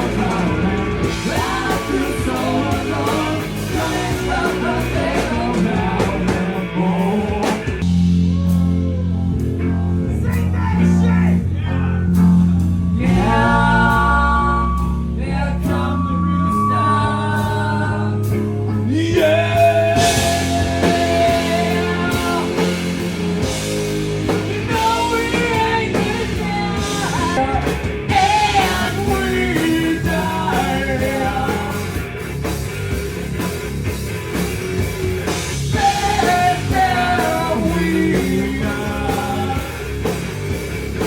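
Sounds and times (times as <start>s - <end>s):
person singing: 0.0s - 9.2s, 12.9s - 23.0s, 24.6s - 32.0s, 35.7s - 39.9s
live rock band playing: 0.0s - 41.0s.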